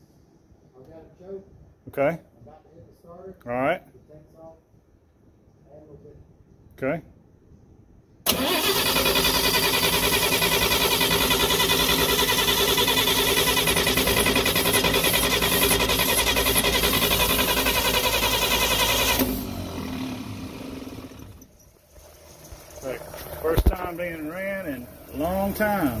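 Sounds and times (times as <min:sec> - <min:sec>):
engine cranking on the starter: 0:08.3 - 0:26.0
engine running: 0:08.3 - 0:26.0.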